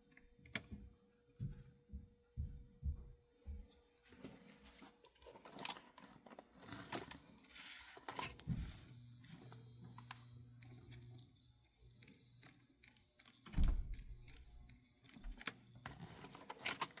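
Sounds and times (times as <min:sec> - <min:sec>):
model parts clicking and scraping: 0:04.5 - 0:08.5, 0:09.4 - 0:17.0
steady low hum: 0:07.4 - 0:16.4.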